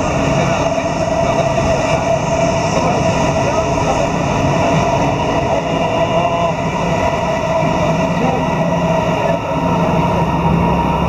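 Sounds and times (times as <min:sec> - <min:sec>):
electric train running: 0:00.0 - 0:11.0.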